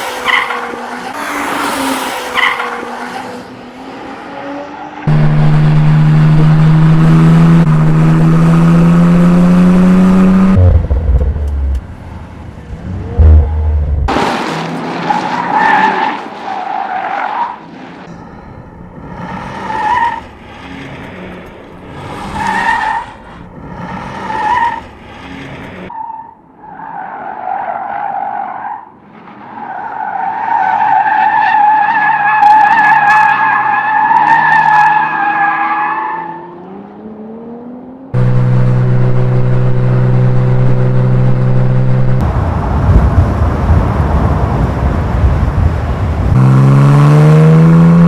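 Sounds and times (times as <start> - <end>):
car tyres squealing: 0.0 - 3.6, 14.6 - 18.1, 19.0 - 36.6
car engine revving: 0.0 - 16.4, 36.6 - 48.0.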